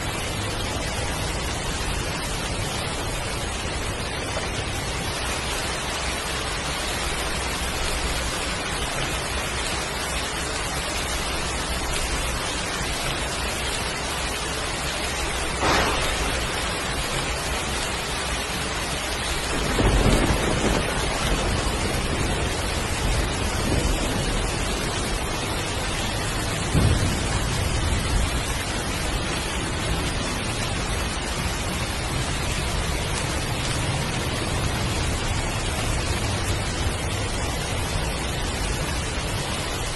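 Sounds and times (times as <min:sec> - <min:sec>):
heavy rain hissing: 0:00.0 - 0:39.9
low thunder rumbles: 0:00.0 - 0:39.9
thunder crack: 0:15.5 - 0:17.6, 0:19.4 - 0:31.6.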